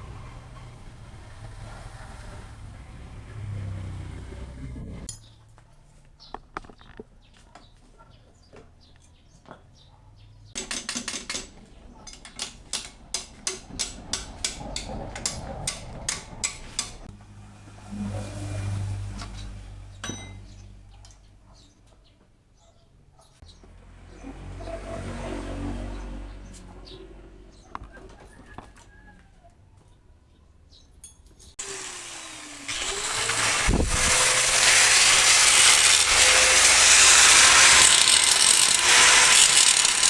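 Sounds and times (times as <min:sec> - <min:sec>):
metal tools clinking: 0:10.6 - 0:17.1.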